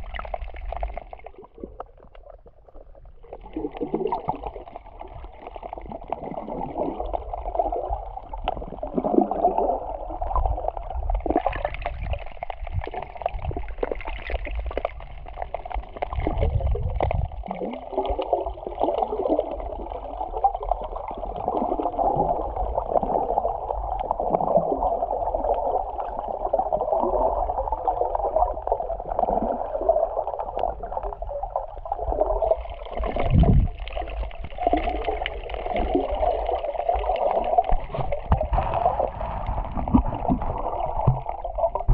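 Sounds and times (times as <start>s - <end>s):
water sloshing underwater: 0.0s - 41.9s
low rumble: 38.1s - 41.9s.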